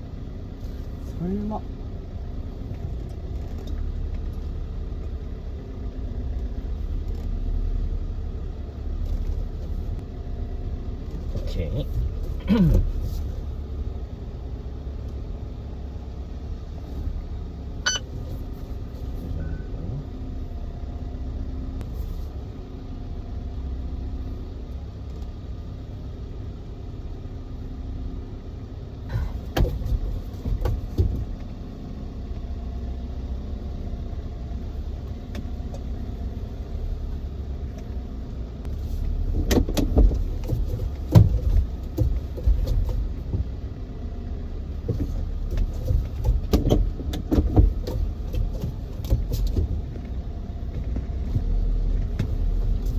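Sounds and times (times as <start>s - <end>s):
vehicle engine rumbling: 0.0s - 52.9s
knocks and clunks: 29.1s - 31.6s, 38.6s - 43.6s, 44.7s - 52.9s.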